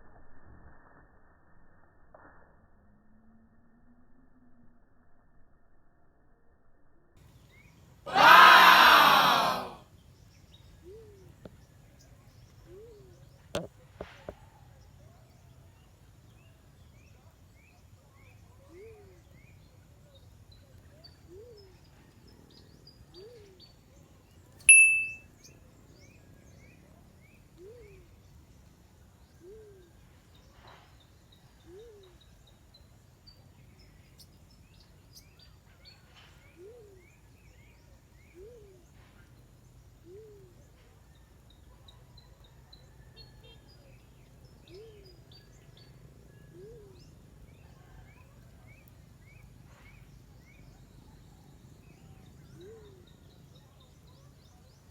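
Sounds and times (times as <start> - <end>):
faint high bird chirps: 16.3 - 28.6, 29.2 - 54.9.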